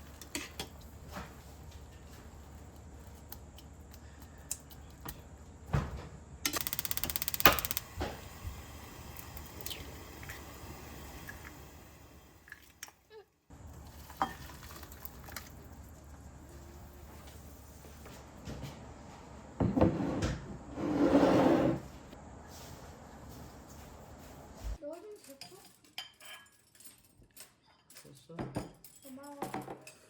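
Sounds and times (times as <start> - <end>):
dishes and utensils clinking: 0.0 - 1.3, 14.0 - 15.4, 25.0 - 30.0
rapid even ticking: 6.5 - 8.0.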